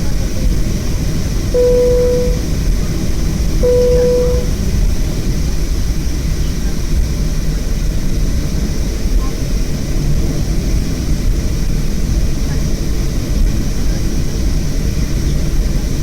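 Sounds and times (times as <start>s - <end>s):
aircraft cabin low rumble: 0.0s - 16.0s
cabin chime: 1.6s - 2.4s, 3.6s - 4.5s.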